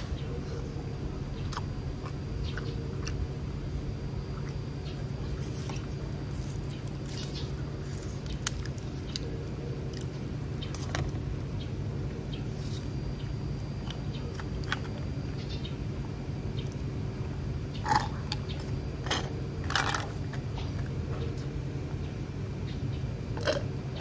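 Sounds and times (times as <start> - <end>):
steady low hum: 0.0 - 24.0
chewing sausage: 1.4 - 3.6, 17.8 - 20.9.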